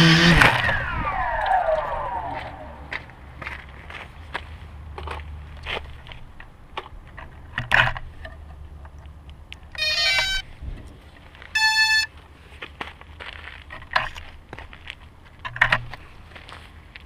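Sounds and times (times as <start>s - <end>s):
steady electronic beep: 9.8s - 10.4s, 11.6s - 12.1s
stepping electronic tones: 9.8s - 10.4s, 11.6s - 12.1s.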